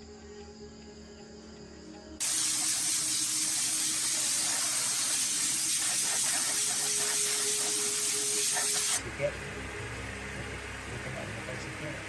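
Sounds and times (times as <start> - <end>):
faint background music: 0.0 - 12.0
loud spraying hiss: 2.2 - 9.0.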